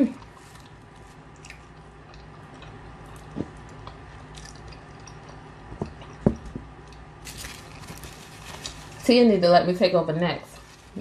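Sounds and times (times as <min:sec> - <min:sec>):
person chewing wetly: 0:00.0 - 0:07.8.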